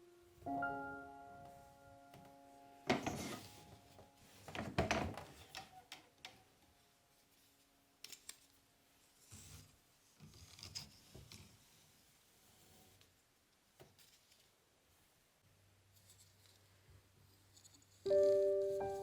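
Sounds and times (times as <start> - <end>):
loom clicks and knocks: 4.4 - 6.4.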